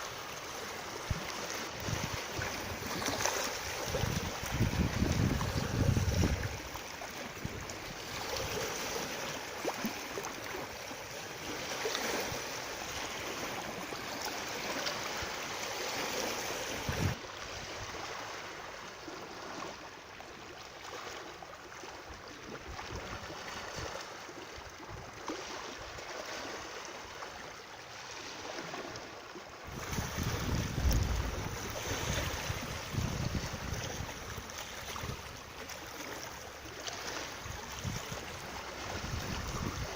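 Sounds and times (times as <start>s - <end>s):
water rushing: 0.0s - 19.8s, 27.9s - 39.9s
wind rumble on microphone: 1.0s - 6.8s, 7.4s - 8.5s, 16.7s - 18.1s, 29.7s - 35.5s, 37.4s - 39.9s.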